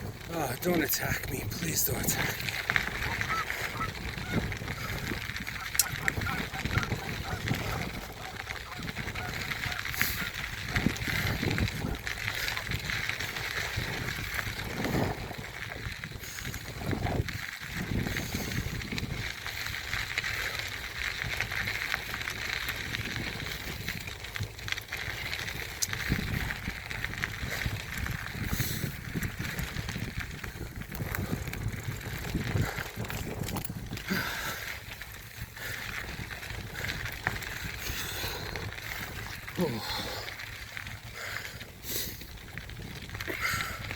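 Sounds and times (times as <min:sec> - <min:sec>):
bike rattling: 0:00.0 - 0:43.9
bike tyre noise on dirt: 0:00.0 - 0:43.9.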